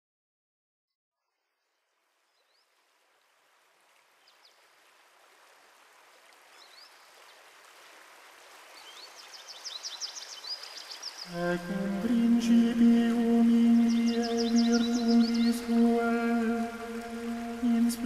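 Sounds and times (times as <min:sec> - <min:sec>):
stream running water: 0:01.3 - 0:18.0
faint bird chirps: 0:08.8 - 0:11.3.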